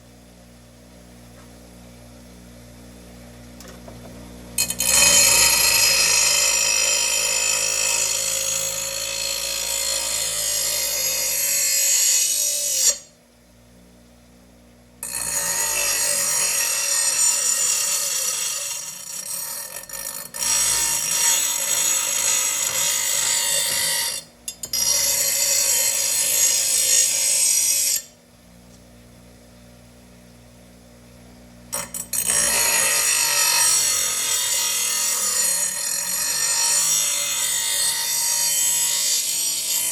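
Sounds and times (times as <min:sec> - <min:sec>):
power grinder grinding steel: 0:04.6 - 0:13.1, 0:15.0 - 0:28.1, 0:31.7 - 0:39.9.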